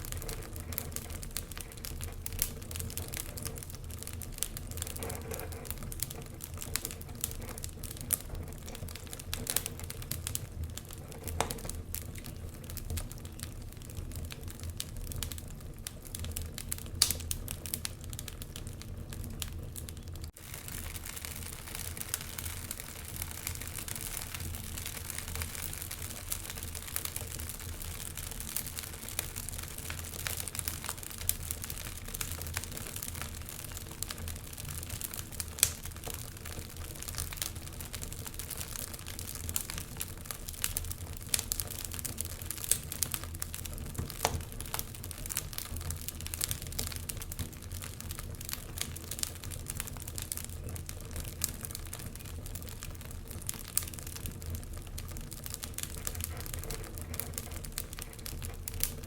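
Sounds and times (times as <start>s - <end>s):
wood fire crackling in fireplace: 0.0s - 59.0s.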